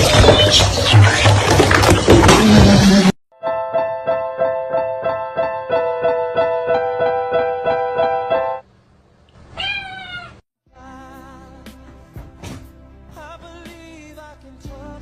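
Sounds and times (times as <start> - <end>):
music: 3.4 - 8.6, 10.7 - 15.0
cat meowing: 9.5 - 10.4.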